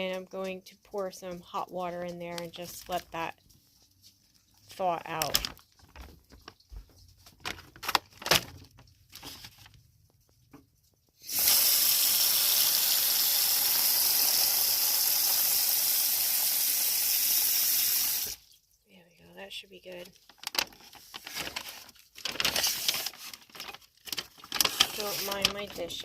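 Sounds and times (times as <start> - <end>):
plastic bag rustling: 1.7 - 10.4, 19.9 - 26.0
water running from faucet: 11.2 - 18.7.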